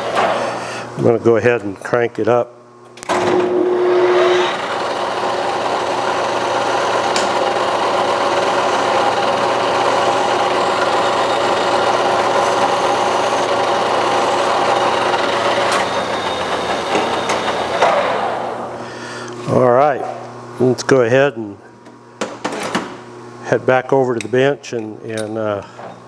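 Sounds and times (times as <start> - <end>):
metal lathe running: 3.2 - 18.9
file rasping on spinning steel: 3.6 - 17.8.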